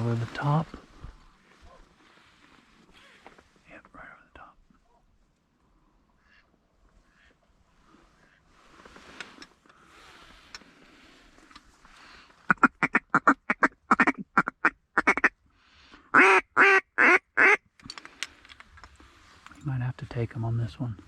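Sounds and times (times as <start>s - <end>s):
duck call quacks: 12.5s - 15.3s, 16.1s - 17.6s.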